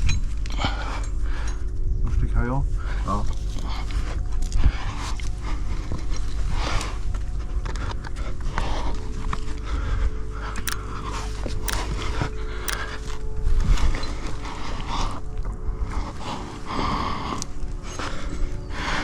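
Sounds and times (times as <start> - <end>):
sharp clicks: 10.7 - 12.0.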